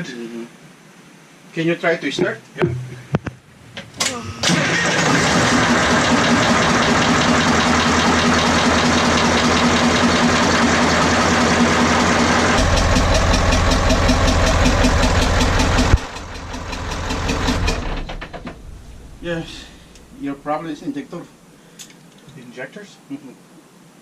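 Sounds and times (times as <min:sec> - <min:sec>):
diesel engine knocking: 0:05.0 - 0:20.7.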